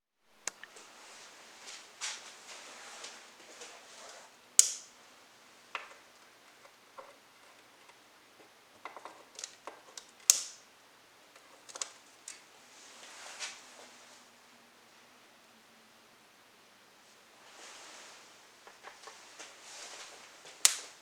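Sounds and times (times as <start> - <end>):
twigs crackling in a fireplace: 0.4 - 10.7, 11.3 - 13.6, 18.6 - 21.0.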